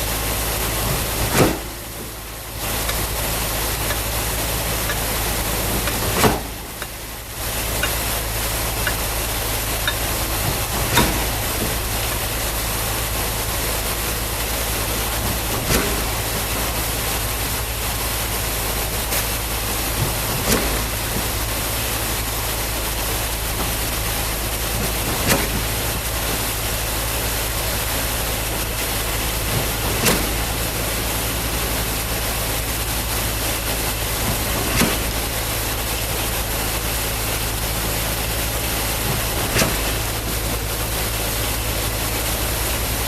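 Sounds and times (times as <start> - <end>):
concrete pump truck running: 0.0 - 43.0
pump clunk: 0.0 - 43.0.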